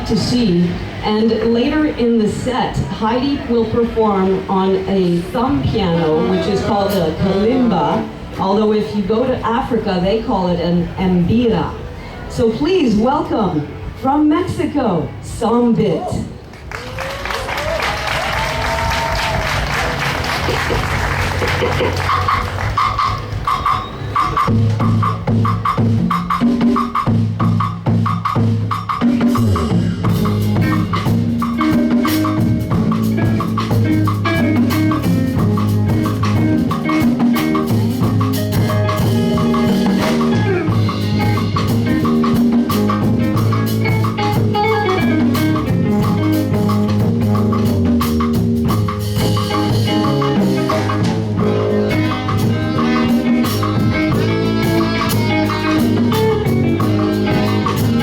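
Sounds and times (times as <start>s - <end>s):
live band music: 0.0s - 11.9s, 12.5s - 58.0s
bass line: 16.9s - 23.6s, 24.4s - 58.0s
drum kit playing a steady beat: 17.4s - 58.0s.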